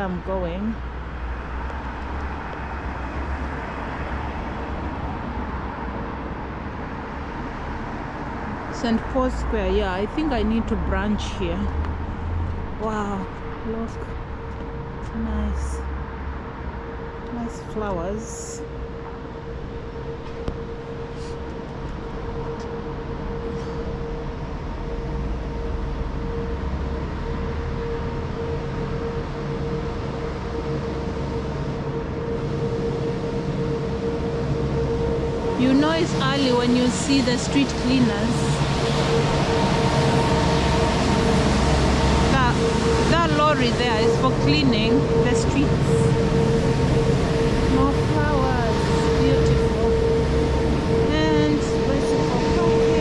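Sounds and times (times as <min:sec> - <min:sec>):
engine whine: 0:00.0 - 0:53.0
faint steady hum: 0:00.0 - 0:53.0
traffic noise: 0:00.0 - 0:53.0
lorry engine running: 0:19.8 - 0:53.0.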